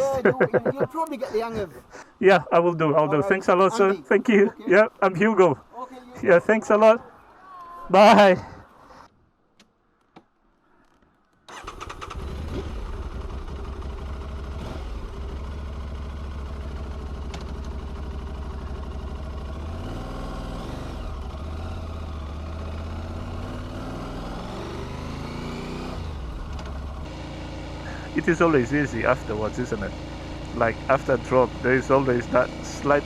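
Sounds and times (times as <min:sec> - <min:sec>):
motorcycle engine running: 0:11.5 - 0:33.0.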